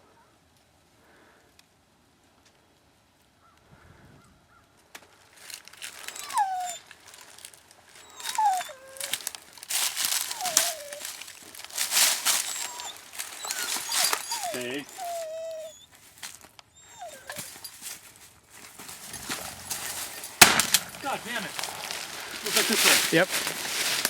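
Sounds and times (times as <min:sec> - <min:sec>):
dry leaves crunching and rustling: 0:05.2 - 0:24.0
dog whining: 0:05.9 - 0:06.9, 0:08.0 - 0:15.9, 0:16.7 - 0:17.8.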